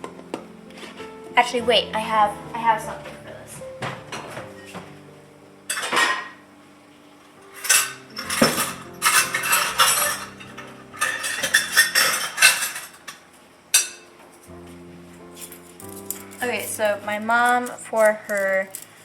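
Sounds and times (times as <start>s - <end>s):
metal utensils clinking: 5.7s - 6.4s, 7.5s - 14.1s, 15.4s - 19.0s.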